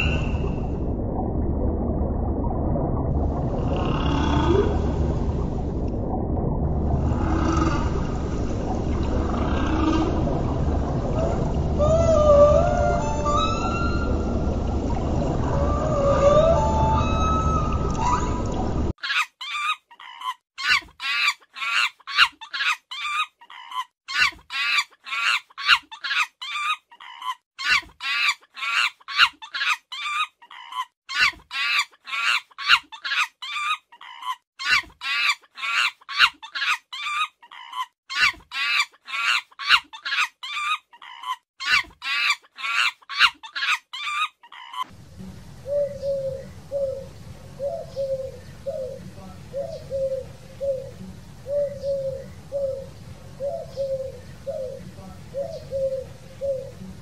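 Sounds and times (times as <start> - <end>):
high-pitched animal calls: 0.0 - 0.5, 11.2 - 14.2, 15.5 - 44.9
low steady rumble: 0.0 - 18.9, 44.9 - 57.0
doves cooing: 44.6 - 57.0.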